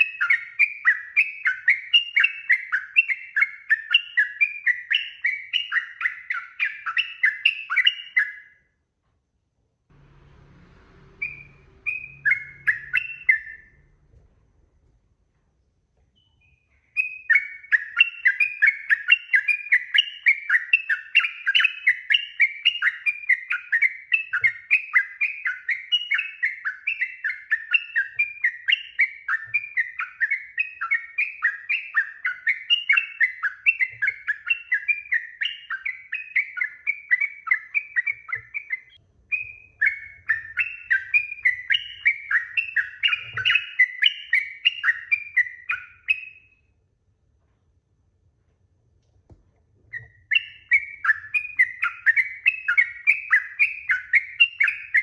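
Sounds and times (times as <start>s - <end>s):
bird singing chattering notes: 11.2s - 13.8s, 16.2s - 46.4s, 49.9s - 55.0s.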